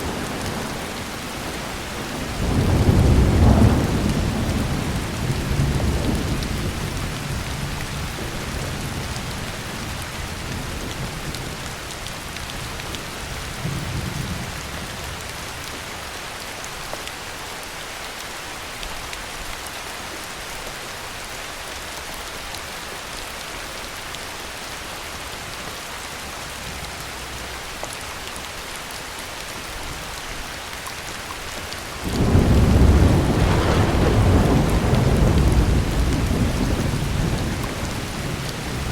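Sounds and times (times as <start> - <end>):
low roll of thunder: 0.0 - 11.2, 32.0 - 38.9
heavy rain falling: 0.0 - 38.9
loud thunderclap: 1.9 - 6.8, 32.0 - 38.9.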